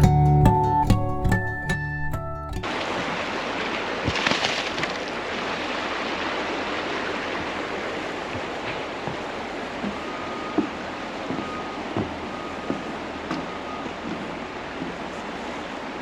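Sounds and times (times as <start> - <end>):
flowing creek water: 2.6 - 16.0
faint knocks: 8.3 - 15.3.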